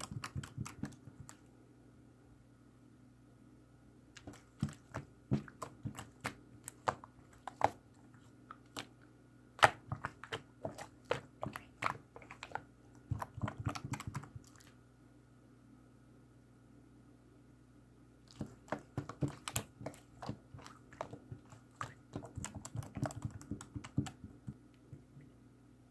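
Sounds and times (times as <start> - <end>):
slime squished by hand: 4.1 - 9.0, 9.6 - 14.8, 18.3 - 24.5.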